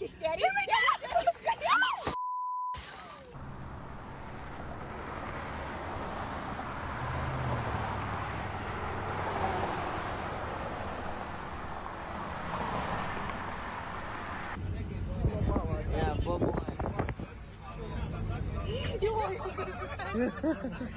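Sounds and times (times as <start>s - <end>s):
rushing wind: 3.4s - 17.3s
low engine hum: 3.4s - 20.2s.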